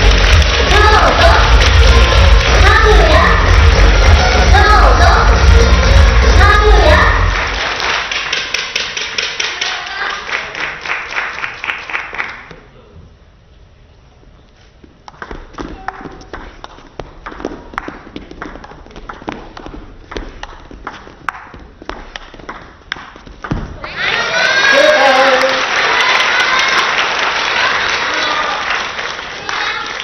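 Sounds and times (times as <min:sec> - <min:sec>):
crowd clapping rhythmically: 0:00.0 - 0:12.6, 0:15.1 - 0:23.2, 0:23.8 - 0:30.0
table tennis rally: 0:15.0 - 0:25.6.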